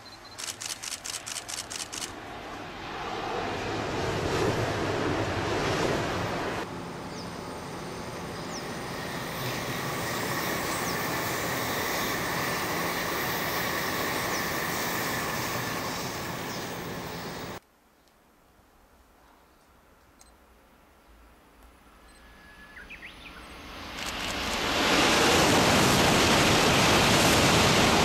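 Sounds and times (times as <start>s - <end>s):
train passing at speed: 1.7s - 17.6s, 22.3s - 28.0s
faint high whine: 20.1s - 24.6s.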